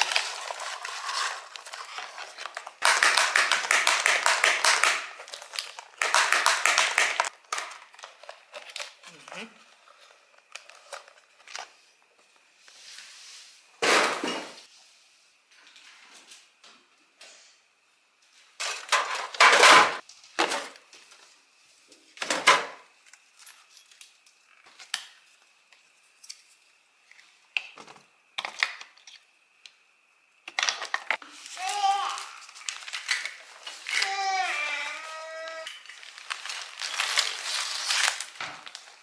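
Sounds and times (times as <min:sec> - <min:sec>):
knocks and clinks of household objects: 0:00.0 - 0:08.7, 0:18.6 - 0:20.7.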